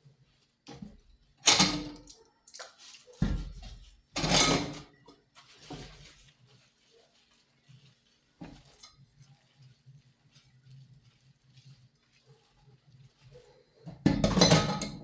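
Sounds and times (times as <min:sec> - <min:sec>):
household items knocking and clattering: 0:13.9 - 0:15.0.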